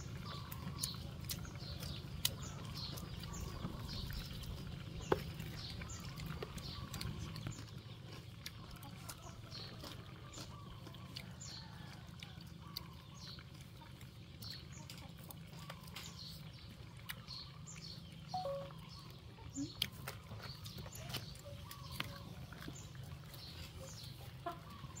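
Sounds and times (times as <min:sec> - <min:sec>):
small birds chirping: 0:00.0 - 0:25.0
short high blips: 0:18.4 - 0:18.7.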